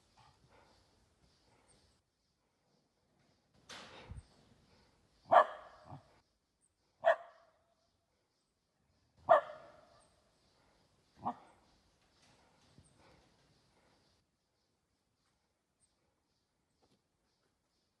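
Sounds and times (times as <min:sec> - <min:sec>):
dog barking: 0:05.3 - 0:06.1, 0:07.0 - 0:07.5, 0:09.2 - 0:10.0, 0:11.2 - 0:11.6.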